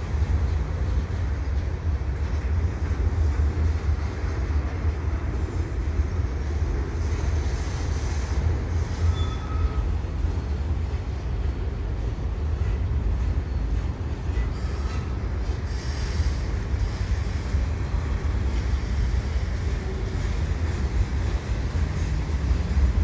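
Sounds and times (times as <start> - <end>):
freight train rumbling: 0.0 - 23.0
faint wheel squeal: 7.0 - 10.6, 14.3 - 17.6.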